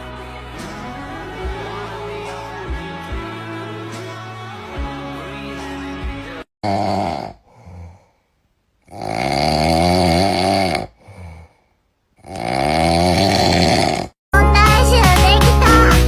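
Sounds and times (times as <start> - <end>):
animal snoring: 6.6 - 8.1, 8.9 - 11.6, 12.2 - 14.2
soft breath: 7.4 - 8.5, 11.0 - 11.9.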